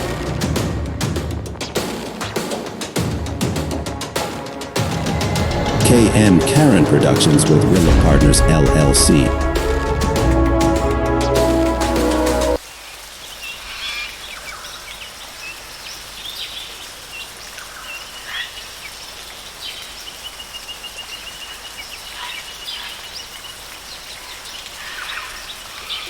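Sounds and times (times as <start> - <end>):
rapid high trill: 4.4 - 12.6
bird calls: 19.6 - 26.0.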